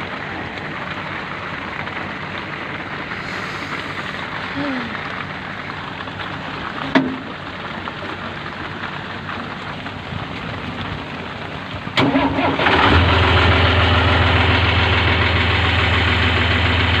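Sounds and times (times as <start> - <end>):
steady hiss: 0.0 - 9.3
engine cranking and idling: 0.0 - 17.0.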